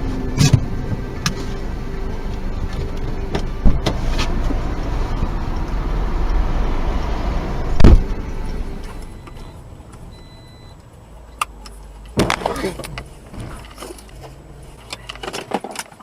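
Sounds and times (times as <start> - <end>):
car road and engine noise: 0.0 - 16.0
sharp thumps: 2.6 - 5.8, 7.6 - 9.4.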